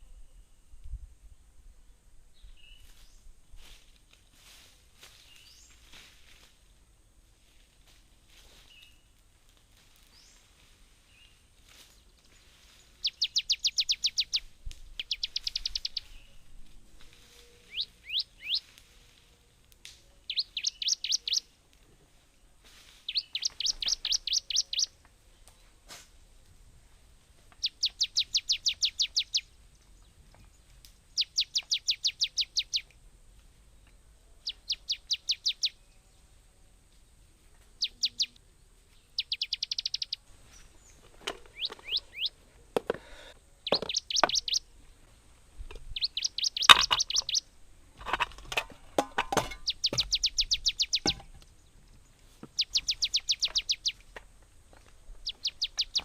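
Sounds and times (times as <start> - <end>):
bird trilling: 13.0 - 14.4, 15.0 - 16.3, 17.6 - 18.6, 20.3 - 21.4, 23.1 - 24.9, 39.2 - 40.2, 41.4 - 42.4, 43.6 - 44.7, 46.0 - 47.5, 49.4 - 51.3, 52.6 - 54.0, 55.2 - 56.0
knocks and rustling: 48.0 - 50.2, 51.0 - 51.5.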